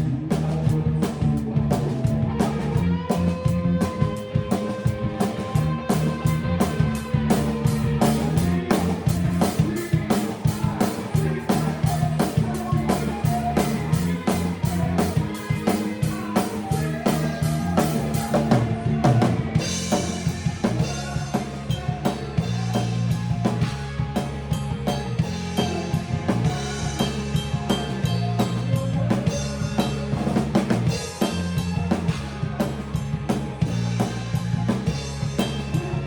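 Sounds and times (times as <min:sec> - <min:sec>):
band music with drum kit: 0:00.0 - 0:36.0.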